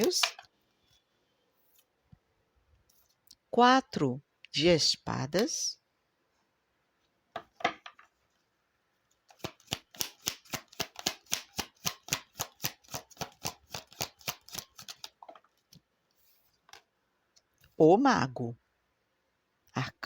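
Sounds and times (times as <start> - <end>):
cards being shuffled by hand: 9.2 - 16.8.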